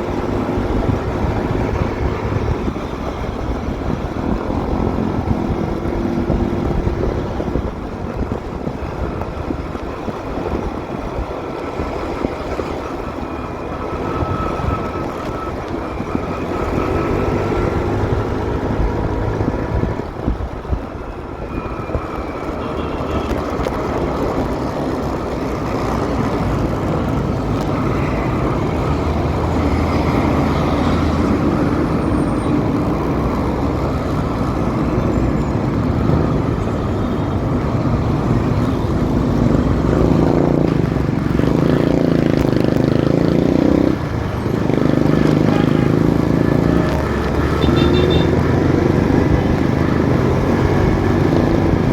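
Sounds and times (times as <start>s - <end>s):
road and wind noise: 0.0s - 51.9s
motorcycle engine running: 37.4s - 51.9s.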